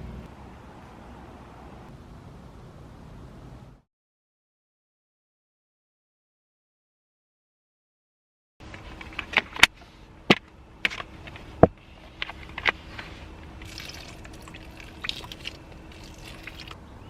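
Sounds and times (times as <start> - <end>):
faint steady hum: 8.6 - 17.0.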